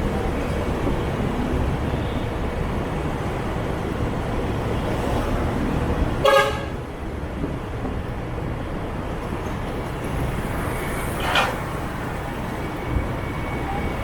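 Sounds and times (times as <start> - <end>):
city traffic: 0.0 - 14.0
vehicle horn toot: 6.2 - 6.8.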